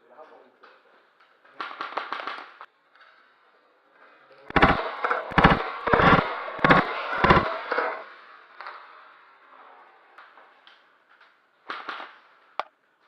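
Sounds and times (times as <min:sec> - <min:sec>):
airsoft guns firing bursts: 0:01.5 - 0:02.7, 0:04.5 - 0:08.0, 0:11.7 - 0:12.3.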